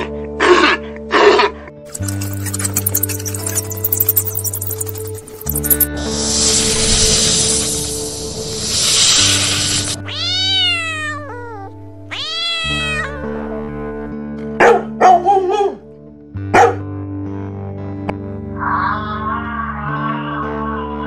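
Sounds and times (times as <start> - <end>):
background music: 0.8 - 21.0
cat meowing: 10.0 - 13.4
dog barking: 14.6 - 15.8, 16.5 - 16.9.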